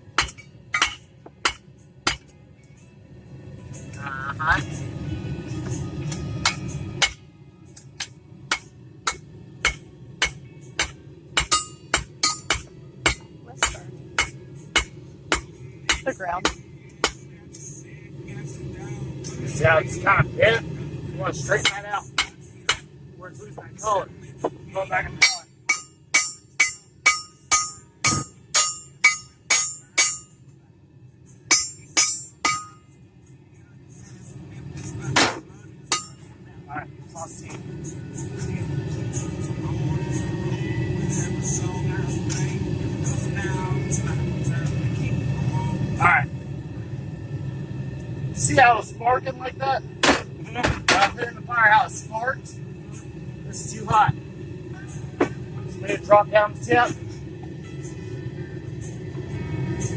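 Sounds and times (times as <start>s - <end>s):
hammer clanking on anvil: 0.2s - 2.3s, 8.0s - 16.0s, 25.2s - 30.3s.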